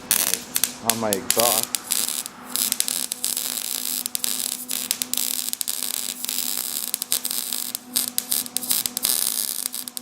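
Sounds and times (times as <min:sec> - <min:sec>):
welding crackling hiss: 0:00.0 - 0:10.0.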